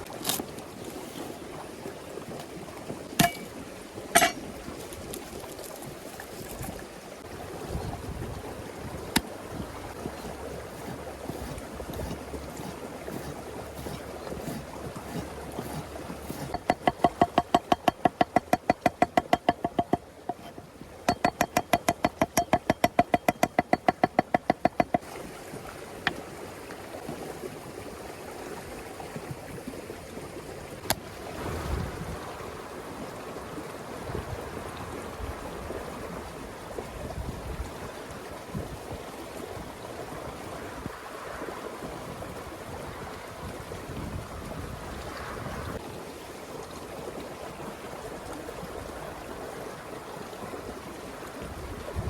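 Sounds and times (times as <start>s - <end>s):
wind-like outdoor noise: 0.0s - 52.0s
rapid even tapping: 10.8s - 25.0s.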